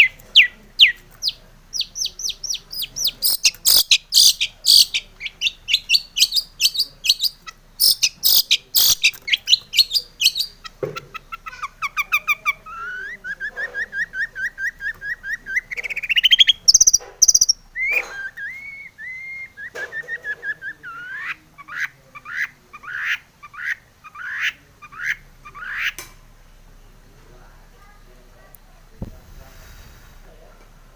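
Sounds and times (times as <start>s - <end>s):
bird singing: 0.0s - 10.7s, 11.8s - 21.3s.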